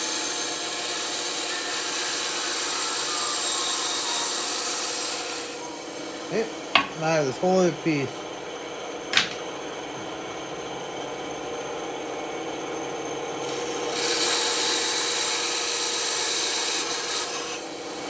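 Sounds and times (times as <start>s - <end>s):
saw blade cutting wood: 0.0s - 8.2s, 9.0s - 10.1s, 13.4s - 18.0s
band saw humming: 0.0s - 18.0s.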